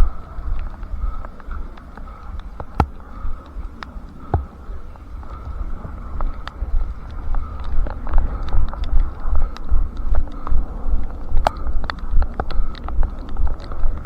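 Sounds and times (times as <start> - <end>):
wind rumbling on microphone: 0.0 - 14.0
sharp ticks: 5.2 - 14.0.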